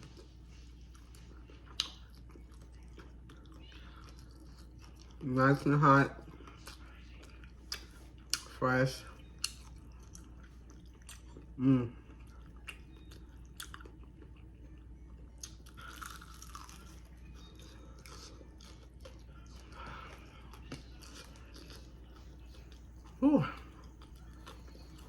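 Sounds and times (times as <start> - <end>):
chewing crispy food: 0.0 - 25.0
person humming: 23.2 - 23.7.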